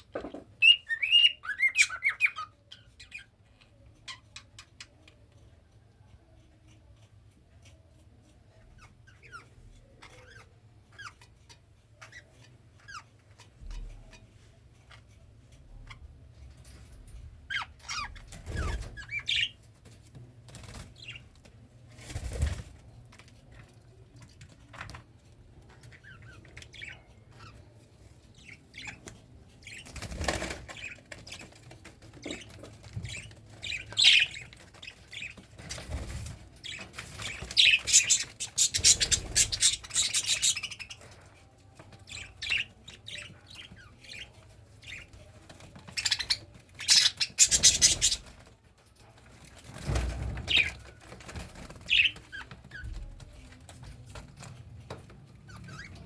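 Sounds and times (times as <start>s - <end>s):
cockatiel chirping: 0.6s - 3.3s, 33.2s - 35.3s, 36.7s - 41.1s, 46.0s - 48.2s.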